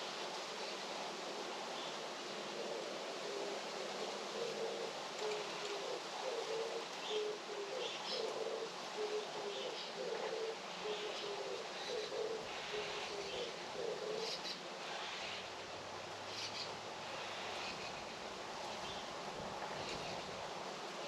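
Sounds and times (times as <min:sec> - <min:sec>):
steady outdoor hiss: 0:00.0 - 0:21.0
dove cooing: 0:02.5 - 0:15.4.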